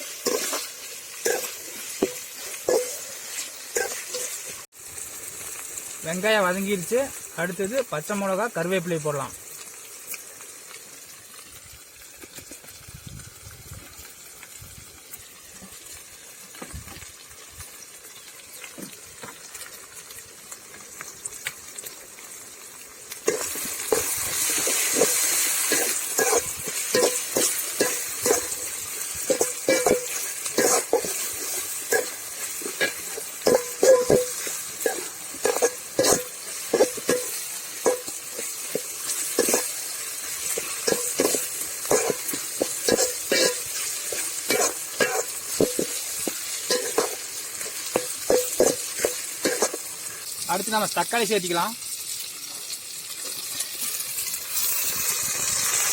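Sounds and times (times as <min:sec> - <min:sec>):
spatula scraping a pan: 0:00.0 - 0:04.5, 0:23.3 - 0:50.2
frying sizzle in oil: 0:00.0 - 0:55.9.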